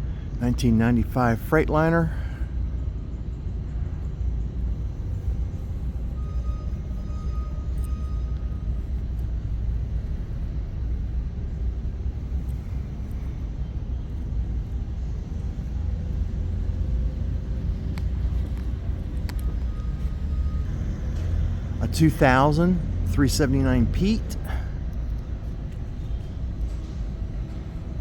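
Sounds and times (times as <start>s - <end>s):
low rumble of hall noise: 0.0s - 28.0s
faint clicks: 17.8s - 20.2s.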